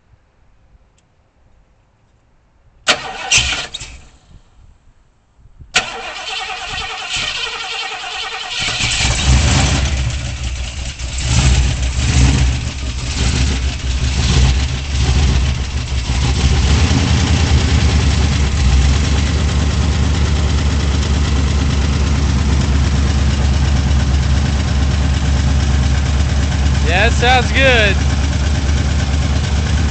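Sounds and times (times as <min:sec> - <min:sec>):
engine starting and revving: 0:02.9 - 0:04.3, 0:05.8 - 0:19.6.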